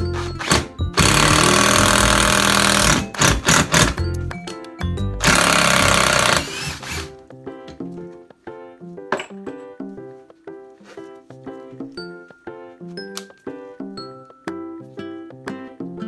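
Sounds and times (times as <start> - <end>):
impact driver whirring: 0.0 - 4.0, 5.2 - 7.2
background music: 0.0 - 16.0.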